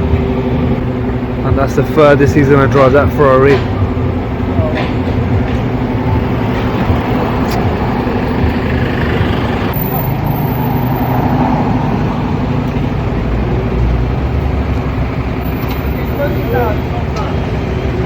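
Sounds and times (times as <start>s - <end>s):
street traffic noise: 0.0s - 18.0s
vehicle engine running: 0.0s - 18.0s.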